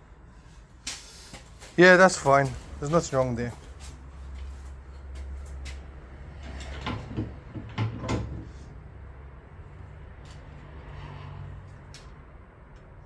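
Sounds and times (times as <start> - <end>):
knocks and clatters of parts: 6.4 - 8.6.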